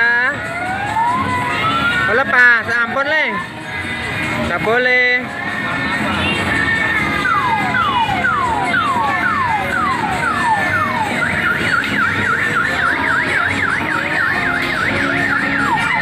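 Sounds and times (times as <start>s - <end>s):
electronic siren whoops and warble: 0.4s - 2.4s, 6.9s - 16.0s.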